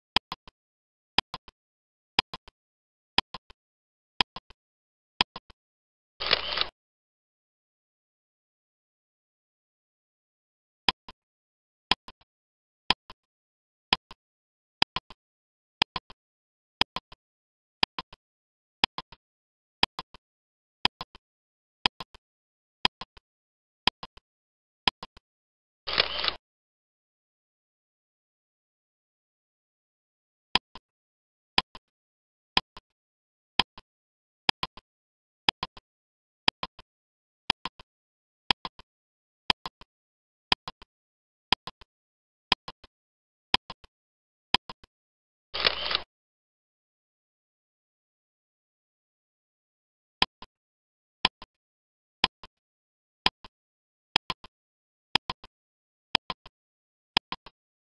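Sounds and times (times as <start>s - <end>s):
faint clicks: 0.1s - 0.6s, 1.2s - 1.6s, 3.2s - 3.6s, 12.9s - 14.2s, 14.8s - 15.2s, 20.8s - 21.2s, 35.5s - 35.8s, 38.5s - 38.9s, 41.5s - 41.9s, 43.5s - 43.9s, 53.2s - 53.5s, 57.2s - 57.6s
timer ticking: 0.2s - 0.6s, 1.2s - 1.6s, 2.2s - 2.6s, 3.2s - 3.6s, 4.2s - 4.6s, 5.2s - 5.6s, 10.9s - 11.3s, 11.9s - 12.3s, 12.9s - 14.2s, 14.8s - 15.2s, 15.8s - 16.2s, 16.8s - 17.2s, 17.8s - 18.2s, 18.8s - 19.2s, 19.8s - 20.2s, 20.8s - 21.2s, 21.8s - 22.2s, 22.8s - 23.2s, 24.9s - 25.2s, 30.6s - 30.9s, 31.6s - 31.9s, 32.6s - 33.9s, 34.5s - 34.9s, 35.5s - 35.8s, 36.5s - 36.9s, 37.5s - 37.9s, 38.5s - 38.9s, 39.5s - 39.9s, 40.5s - 40.9s, 41.5s - 41.9s, 42.5s - 42.9s, 43.5s - 43.9s, 44.5s - 44.9s, 50.2s - 50.5s, 51.2s - 51.5s, 52.2s - 52.6s, 53.2s - 53.5s, 54.2s - 54.5s, 55.2s - 55.5s, 56.2s - 56.6s, 57.2s - 57.6s.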